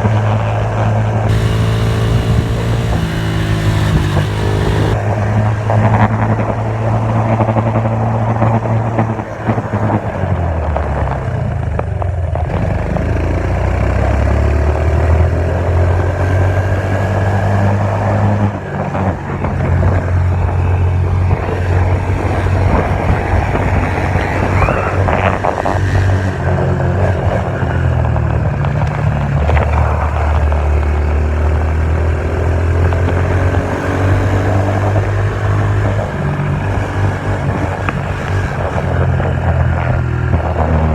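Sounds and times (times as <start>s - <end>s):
dirt bike engine revving: 1.3s - 5.0s.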